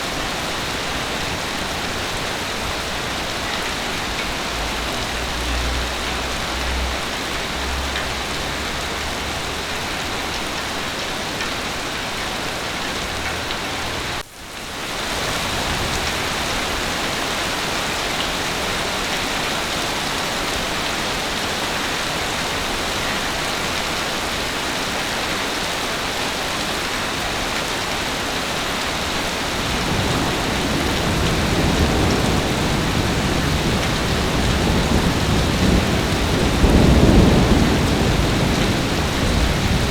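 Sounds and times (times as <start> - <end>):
heavy rain: 0.0 - 39.9
thunder rumble: 29.0 - 39.9.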